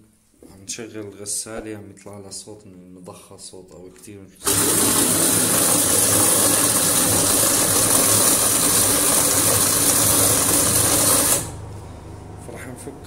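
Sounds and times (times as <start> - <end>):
washing machine pump noise: 4.4 - 11.7
motor hum: 4.4 - 13.0.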